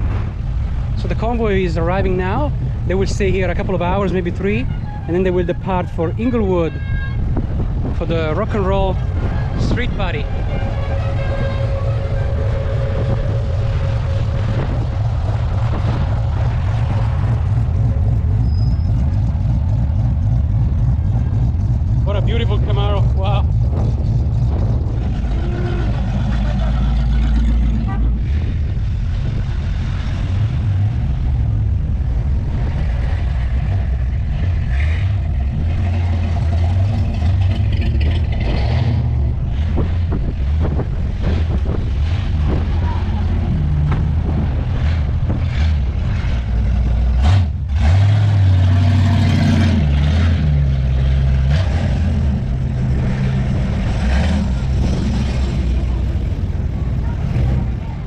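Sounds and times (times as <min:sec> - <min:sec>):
car engines rumbling past: 0:00.0 - 0:58.0.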